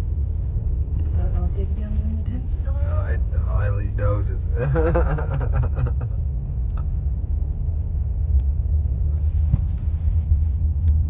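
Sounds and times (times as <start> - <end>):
car cabin road noise: 0.0 - 11.0.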